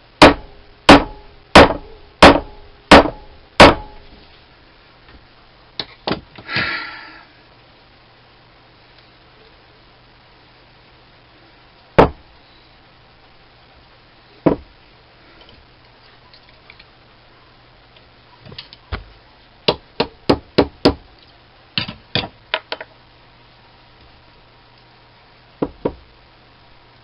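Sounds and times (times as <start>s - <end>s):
hammer tapping on metal: 0.2s - 4.0s.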